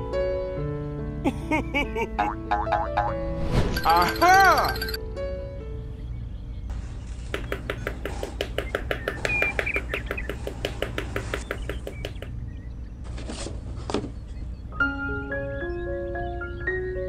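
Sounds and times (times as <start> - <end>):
rubber mallet tapping sticks: 7.3 - 12.3.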